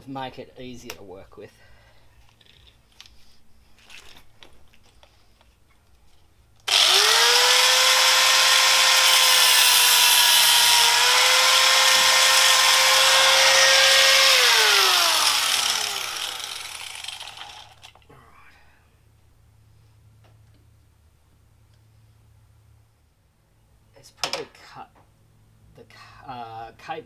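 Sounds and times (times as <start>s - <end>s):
angle grinder cutting cable: 6.6s - 18.0s.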